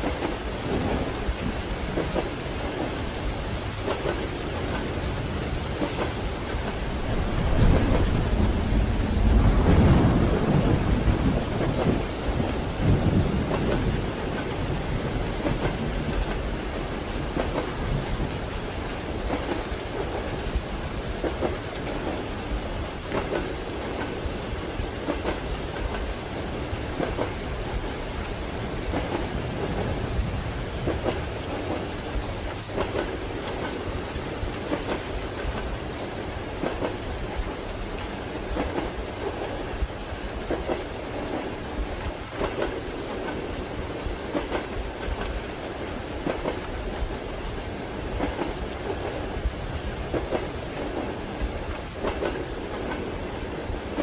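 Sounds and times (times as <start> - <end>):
train wheels clacking over rail joints: 0.0 - 8.5, 21.2 - 30.0, 30.8 - 47.1, 48.0 - 54.0
steady rain: 0.0 - 54.0
train rumbling: 0.0 - 54.0
wheels clacking over rail joints: 48.1 - 54.0.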